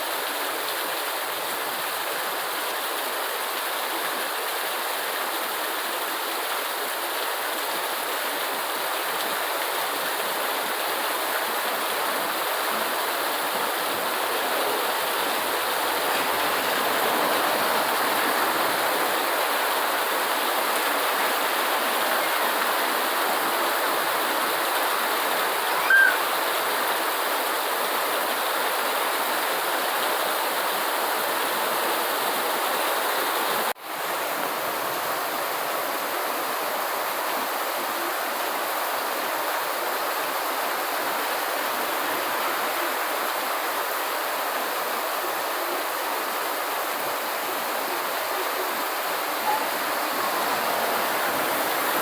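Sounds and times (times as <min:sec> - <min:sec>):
steady rain hiss: 0:00.0 - 0:52.0
short high tone: 0:25.7 - 0:26.3.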